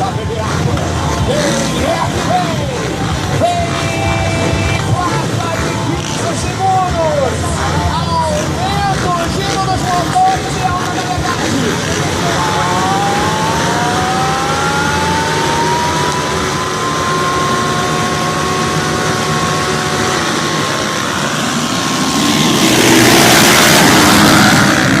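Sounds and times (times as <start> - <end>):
loud rushing noise: 0.0 - 25.0
motorcycle engine revving: 0.0 - 25.0.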